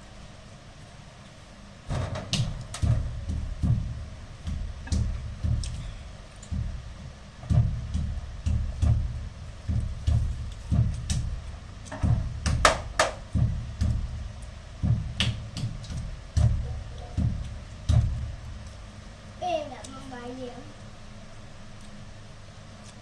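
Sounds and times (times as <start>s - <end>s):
dull chewing thuds: 1.9s - 20.0s.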